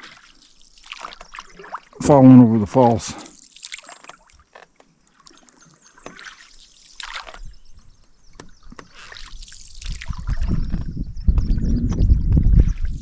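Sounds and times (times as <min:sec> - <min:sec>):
water dripping off paddle: 0:00.0 - 0:10.9
paddle splashing in water: 0:00.0 - 0:11.5, 0:12.4 - 0:13.0
wind rumble on microphone: 0:07.4 - 0:13.0.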